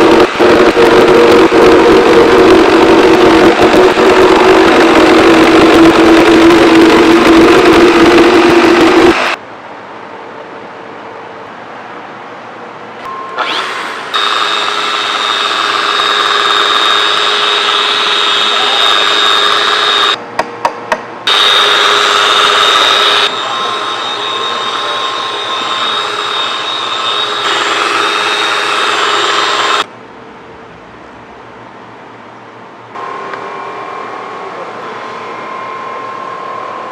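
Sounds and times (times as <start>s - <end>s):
power tool whining: 0.0s - 9.4s, 13.4s - 20.2s, 21.3s - 29.9s
power tool trigger blips: 13.3s - 17.3s.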